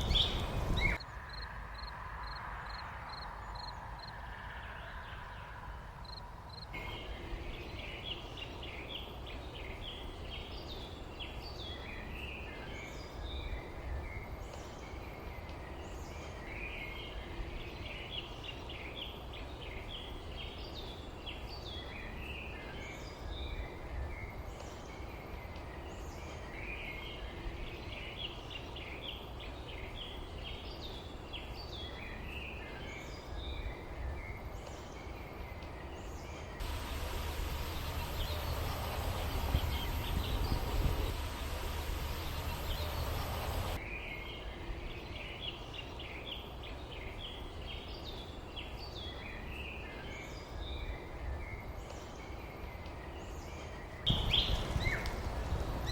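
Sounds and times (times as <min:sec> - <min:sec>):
small songbirds chirping: 0:00.0 - 0:55.9
steady low rumble: 0:36.6 - 0:43.8.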